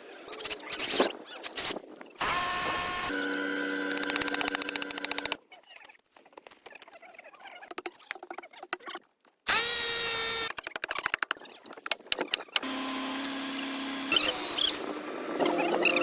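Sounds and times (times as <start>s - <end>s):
power tool motor whine: 2.2s - 5.4s, 12.6s - 15.2s.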